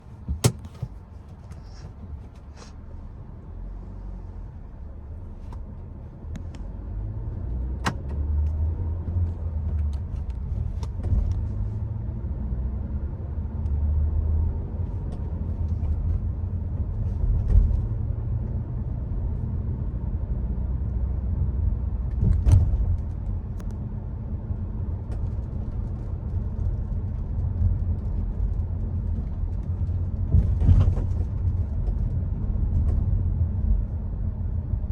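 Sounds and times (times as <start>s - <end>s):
car road and engine rumble: 0.0s - 34.9s
sharp clicks and knocks: 0.2s - 1.6s.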